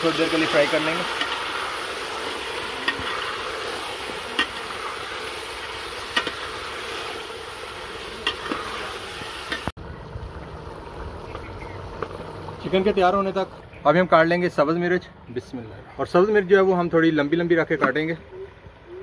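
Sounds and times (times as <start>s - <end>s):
chicken sizzling in a pot: 0.0s - 13.5s.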